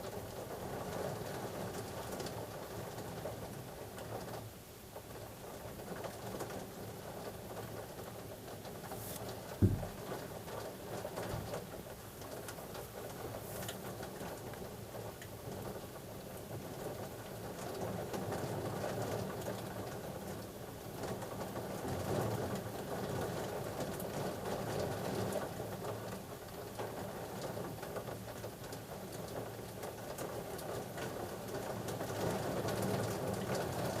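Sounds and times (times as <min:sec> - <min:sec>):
rain hissing: 0:07.9 - 0:15.2.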